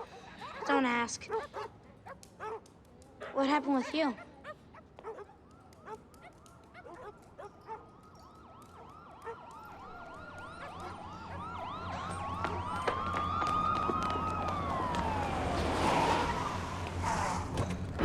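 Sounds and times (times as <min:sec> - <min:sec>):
police siren yelp: 0:05.1 - 0:17.5
police siren wail: 0:05.3 - 0:17.6.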